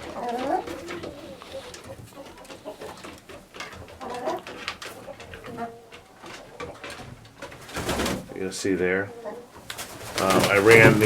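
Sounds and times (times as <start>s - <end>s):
clicks and rustling: 0.0s - 8.1s
chickens clucking softly: 0.0s - 11.0s.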